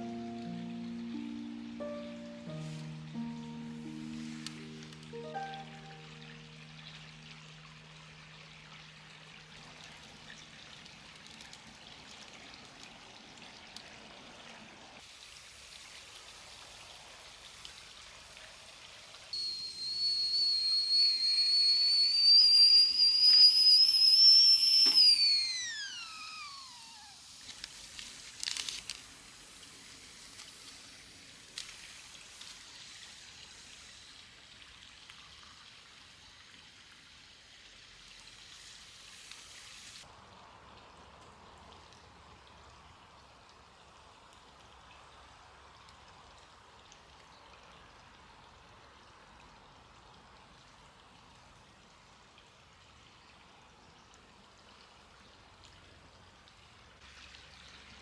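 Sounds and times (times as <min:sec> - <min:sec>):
kettle whistling: 0:00.0 - 0:09.0, 0:19.4 - 0:28.9.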